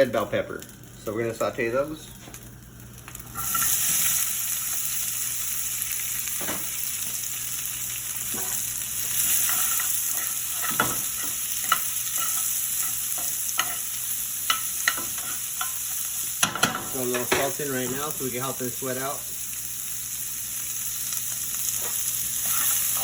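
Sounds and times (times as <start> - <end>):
vegetables sizzling in oil: 0.0 - 23.0
utensil scraping a pan: 21.8 - 23.0.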